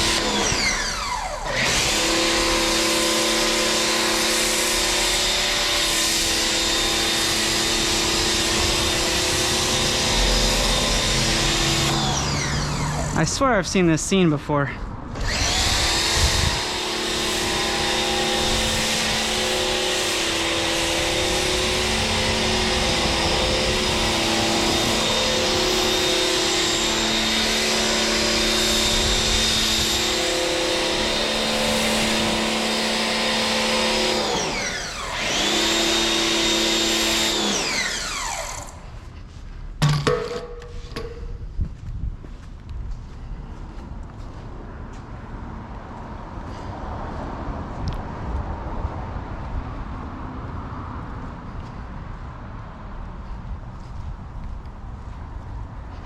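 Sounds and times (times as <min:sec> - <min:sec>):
pressure washer motor whine: 0:00.0 - 0:14.3, 0:15.2 - 0:39.0.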